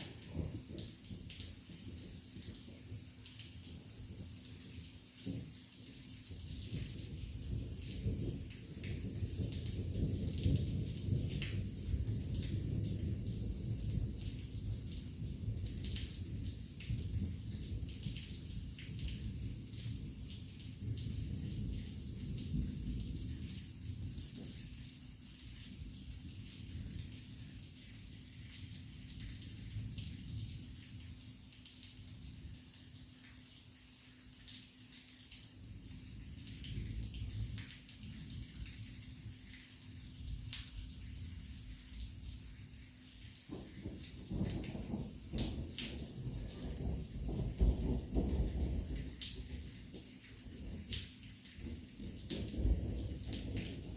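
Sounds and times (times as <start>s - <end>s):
rolling thunder: 0.0s - 0.9s, 43.5s - 49.6s, 52.1s - 53.9s
low thunder rumble: 0.0s - 1.2s, 6.6s - 18.0s, 43.5s - 49.7s, 52.0s - 53.9s
heavy rain splashing: 0.0s - 53.9s.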